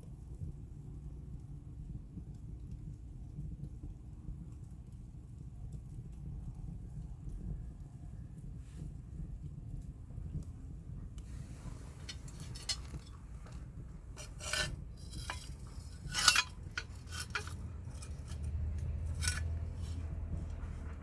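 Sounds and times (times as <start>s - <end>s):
steady low rumble: 10.0s - 21.0s
hard objects clinking and scraping: 11.4s - 20.6s.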